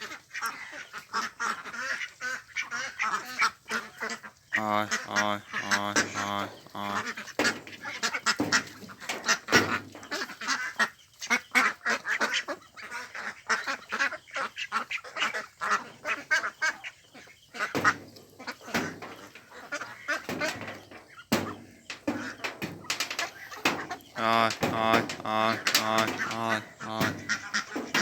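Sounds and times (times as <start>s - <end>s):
ducks quacking: 0.0s - 28.0s.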